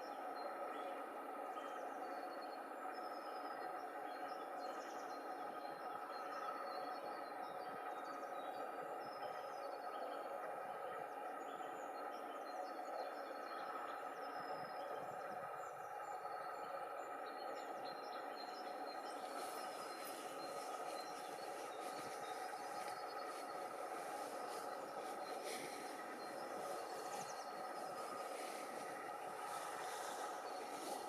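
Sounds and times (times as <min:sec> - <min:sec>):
small birds chirping: 0:01.6 - 0:31.0
steady background rush: 0:17.1 - 0:31.0.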